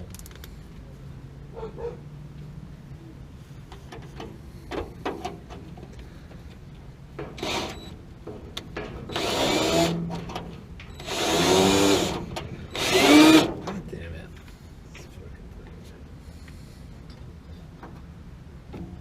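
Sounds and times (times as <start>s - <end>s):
cordless drill running: 11.0s - 13.5s.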